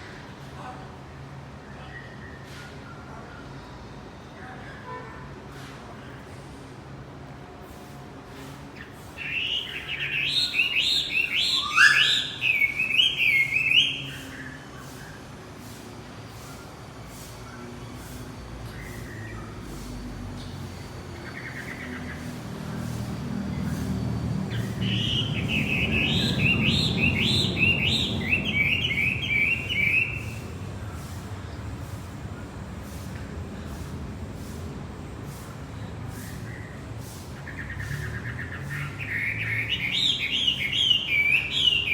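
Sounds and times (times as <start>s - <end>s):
songbird chirping: 9.2s - 14.3s, 21.2s - 30.6s, 37.4s - 41.9s
bird singing whistled notes: 9.2s - 14.6s, 23.5s - 30.6s, 37.4s - 41.9s.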